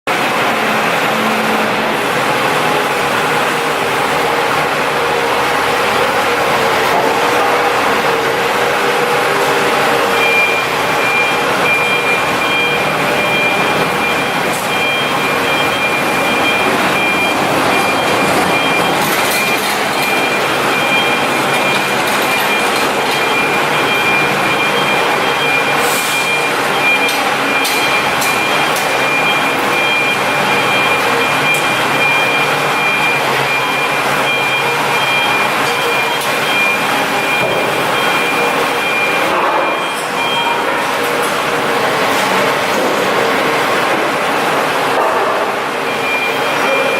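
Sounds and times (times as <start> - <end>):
diesel generator running: 0.1 - 46.9
high pulsing beep: 8.6 - 40.7, 45.8 - 46.9.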